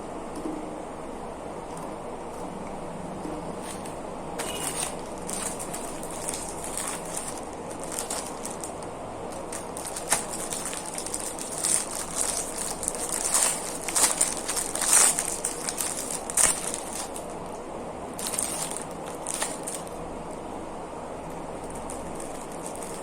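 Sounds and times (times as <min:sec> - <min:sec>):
biscuits crunching: 0:03.5 - 0:20.0, 0:21.6 - 0:23.0.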